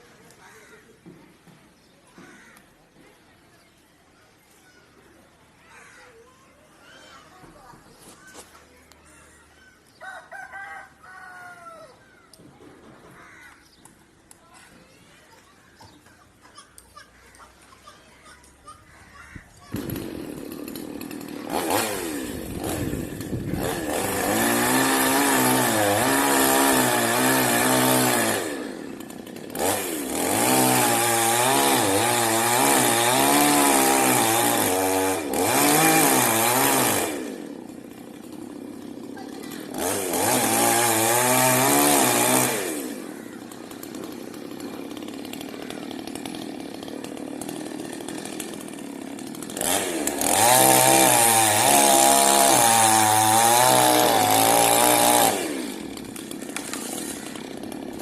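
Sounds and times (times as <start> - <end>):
chainsaw cutting wood: 19.6 - 58.0.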